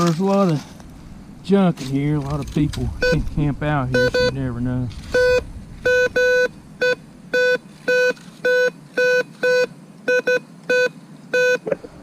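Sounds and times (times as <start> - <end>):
metal detector beeping: 5.1 - 11.8.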